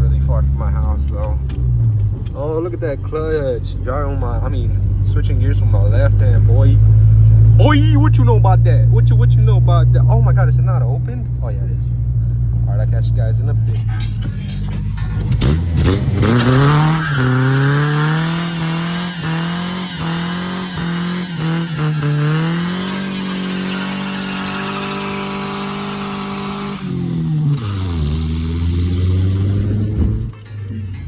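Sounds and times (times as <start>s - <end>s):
pickup truck engine revving: 15.0s - 30.4s.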